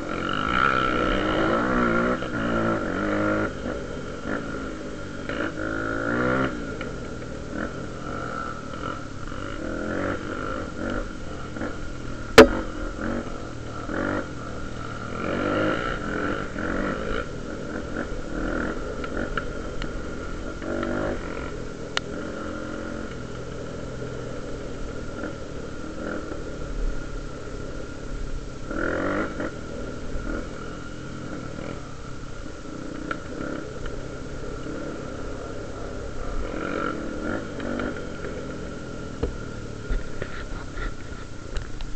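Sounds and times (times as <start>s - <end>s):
motorcycle engine revving: 0.0s - 41.9s
sharp loud click: 12.4s - 12.6s.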